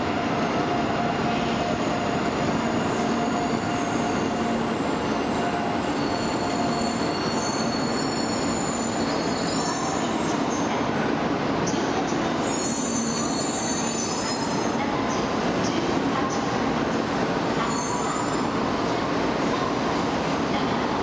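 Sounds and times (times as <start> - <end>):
high-pitched train squeals: 0.0 - 10.7, 11.7 - 14.8, 17.4 - 18.6.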